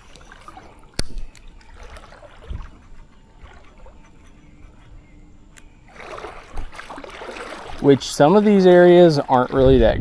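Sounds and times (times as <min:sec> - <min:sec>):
creek water running: 0:00.0 - 0:10.0
small click: 0:01.0 - 0:01.5, 0:05.5 - 0:05.7.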